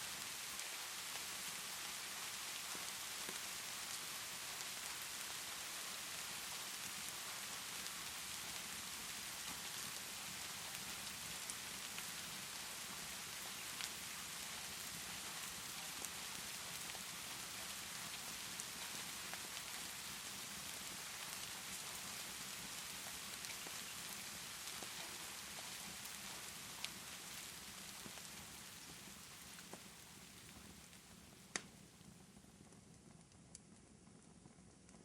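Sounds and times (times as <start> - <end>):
steady rainfall: 0.0 - 32.1
fireplace crackling: 0.0 - 33.9.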